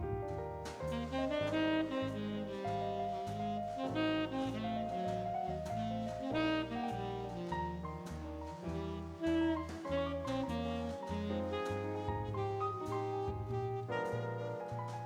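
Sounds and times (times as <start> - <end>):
jazz piano: 0.0 - 15.0
walking bass line: 0.0 - 15.0
saxophone melody: 0.9 - 15.0.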